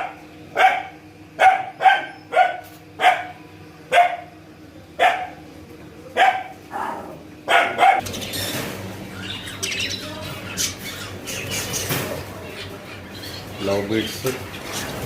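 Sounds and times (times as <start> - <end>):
dog barking: 0.0 - 4.4, 5.0 - 5.4, 6.2 - 8.0
caged birds chirping: 0.0 - 15.0.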